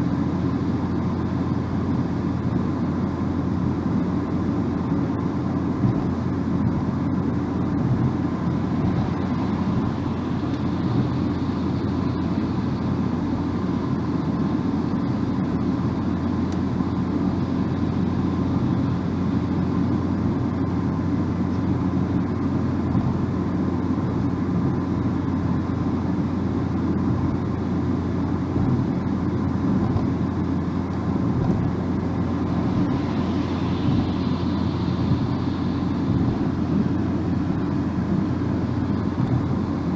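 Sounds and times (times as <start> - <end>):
car engine drone: 0.0 - 39.9
tyres rumbling on road: 0.0 - 39.9.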